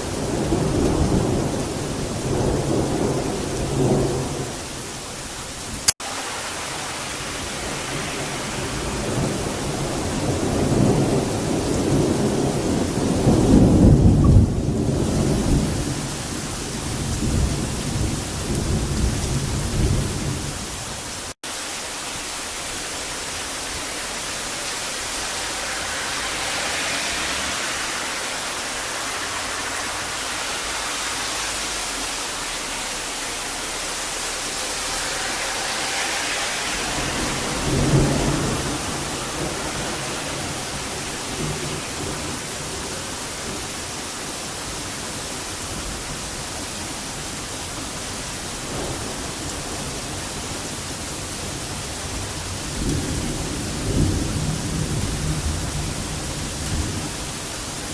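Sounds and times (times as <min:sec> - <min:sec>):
thunder rolling: 0:00.0 - 0:04.9, 0:05.6 - 0:20.8, 0:22.6 - 0:44.0
steady rain: 0:00.0 - 0:57.9.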